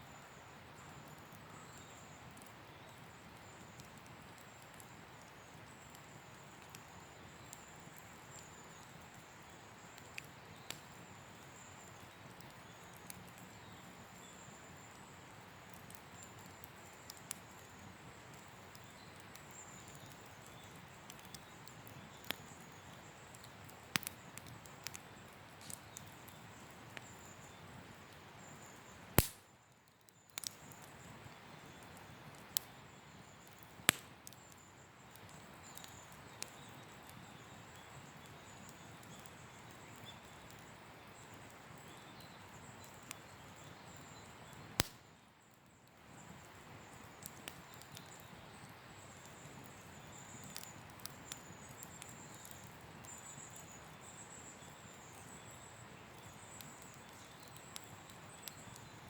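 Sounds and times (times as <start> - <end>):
campfire hissing: 0.0 - 59.0
fire popping: 0.1 - 45.2, 45.8 - 59.0.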